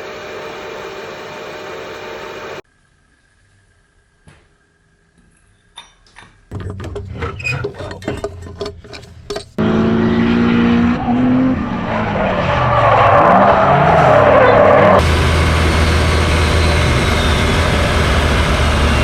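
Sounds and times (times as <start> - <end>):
engine clicks: 6.5 - 9.6
tyre squeal: 6.7 - 15.0, 16.5 - 18.1
car engine revving: 8.4 - 19.0.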